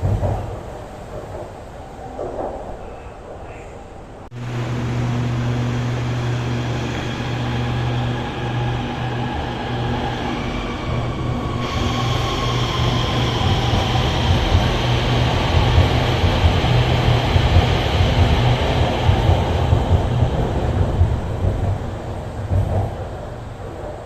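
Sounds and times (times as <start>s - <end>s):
train electric hum with whining: 0.0s - 24.0s
high hiss: 4.4s - 19.5s.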